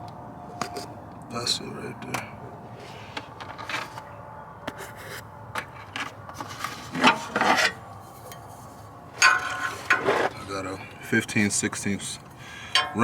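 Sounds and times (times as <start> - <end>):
rattling scrapes of tools: 5.6 - 10.6
metal hand tools clinking: 9.2 - 10.1, 12.7 - 13.0.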